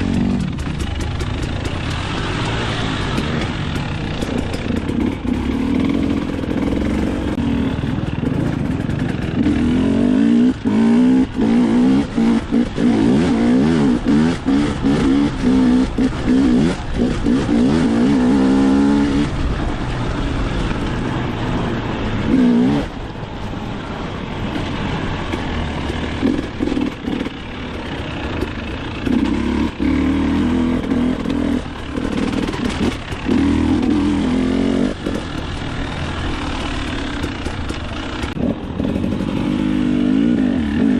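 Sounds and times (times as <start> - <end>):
dirt bike engine revving: 0.0 - 20.5, 22.0 - 23.0, 25.5 - 40.9.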